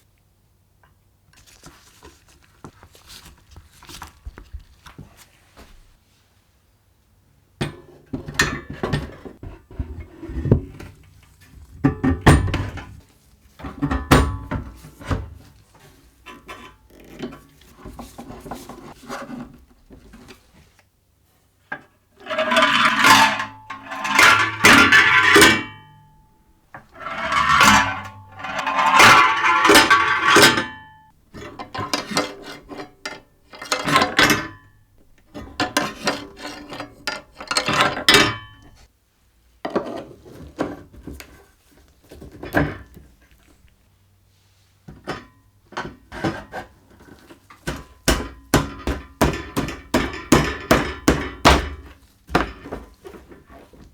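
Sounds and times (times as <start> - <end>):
metal parts clinking and scraping: 22.2 - 26.0, 26.8 - 34.5.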